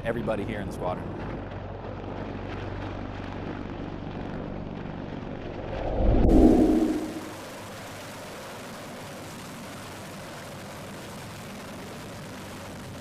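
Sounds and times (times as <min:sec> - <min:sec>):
helicopter rumble: 0:00.0 - 0:07.4
loud deep rumble: 0:05.0 - 0:07.4.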